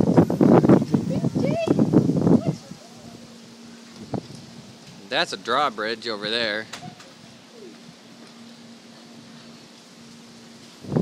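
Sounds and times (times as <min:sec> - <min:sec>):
wind buffeting microphone: 0:00.0 - 0:05.1, 0:10.7 - 0:11.0
rain: 0:00.0 - 0:11.0
wind: 0:00.0 - 0:11.0.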